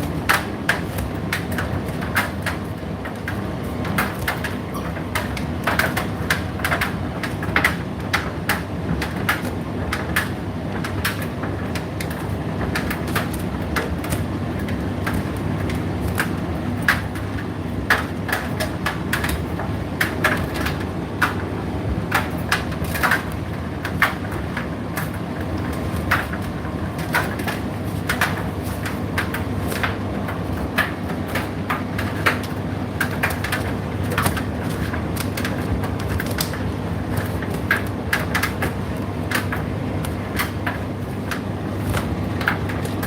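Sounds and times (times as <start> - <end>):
tumble dryer drum rumble: 0.0 - 43.0.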